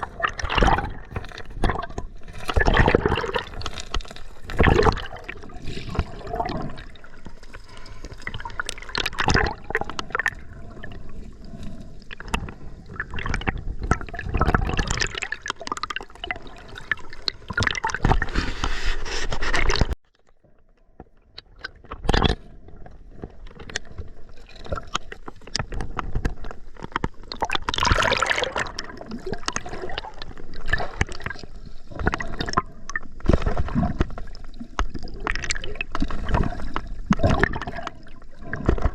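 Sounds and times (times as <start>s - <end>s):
river water sloshing and gurgling: 0.0s - 20.0s, 23.4s - 38.9s
knocks and scrapes: 17.9s - 20.0s.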